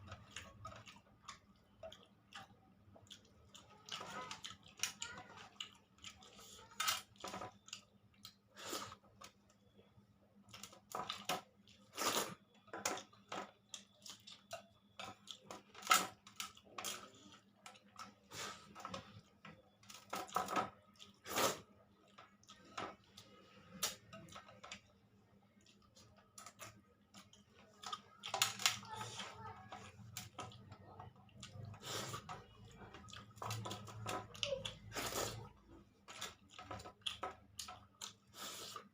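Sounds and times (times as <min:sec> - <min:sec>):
person chewing food: 0:00.0 - 0:09.7, 0:10.5 - 0:28.4, 0:29.1 - 0:38.9.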